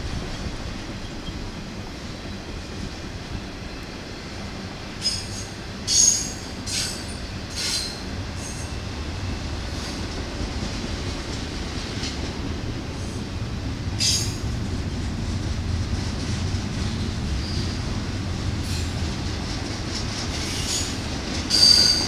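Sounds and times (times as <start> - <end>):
high-pitched metal squeals: 21.5 - 22.0.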